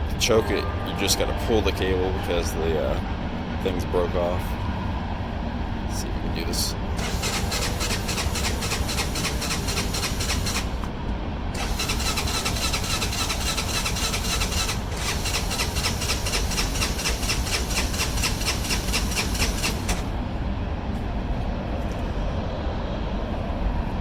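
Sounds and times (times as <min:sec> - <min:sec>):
electric starter cranking engine: 0:06.9 - 0:20.3.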